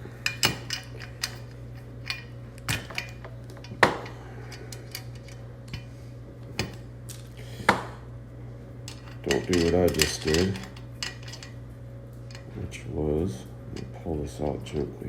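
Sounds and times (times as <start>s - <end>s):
small metal parts clinking: 0.2s - 5.8s, 8.9s - 11.6s.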